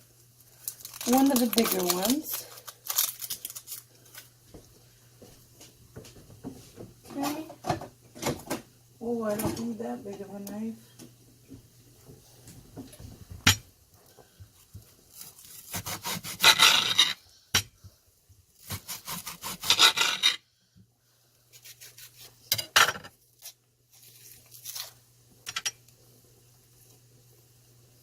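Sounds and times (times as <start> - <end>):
knife rasping through onion: 15.1 - 17.2, 18.6 - 20.4, 21.5 - 22.6.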